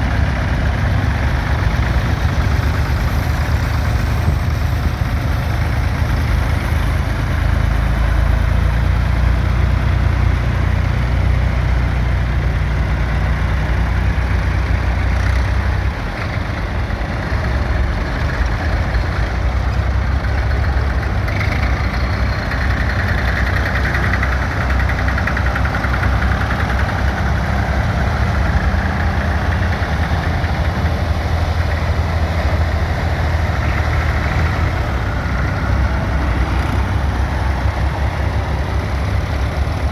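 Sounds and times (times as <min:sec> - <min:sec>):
tractor engines rumbling: 0:00.0 - 0:39.9.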